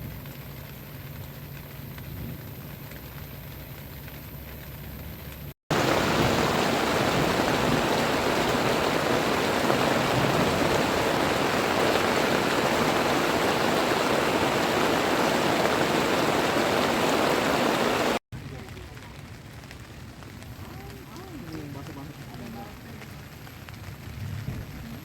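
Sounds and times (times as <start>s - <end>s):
heavy rain hissing: 5.7s - 19.1s.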